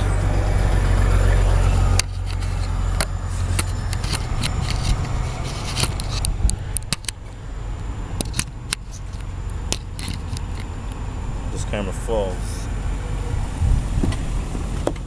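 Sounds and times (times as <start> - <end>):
car engine running: 0.0 - 15.0
sharp clicks and knocks: 1.9 - 7.4, 8.2 - 11.0.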